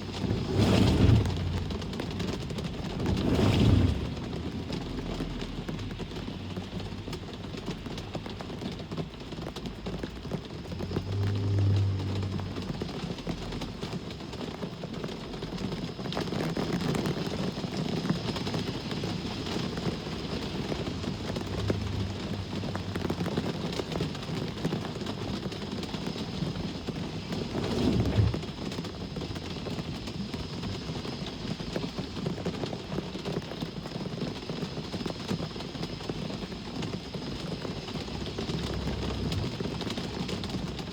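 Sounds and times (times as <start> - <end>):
road traffic passing: 0.0 - 8.2, 10.5 - 14.4, 19.3 - 24.3
low vehicle rumbles: 0.0 - 17.3, 18.2 - 32.2, 36.4 - 40.9
rain hiss: 0.0 - 40.9.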